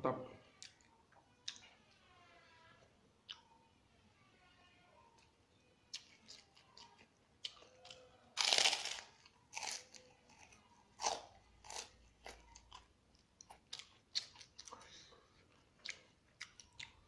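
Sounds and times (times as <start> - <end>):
crunchy food chewing: 5.9 - 17.0.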